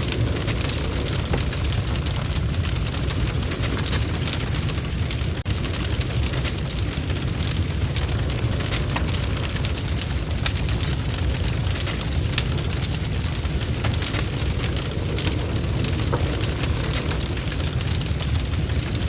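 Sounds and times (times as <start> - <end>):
low rumble of flames: 0.0 - 19.0
wood fire popping and snapping: 0.0 - 19.0.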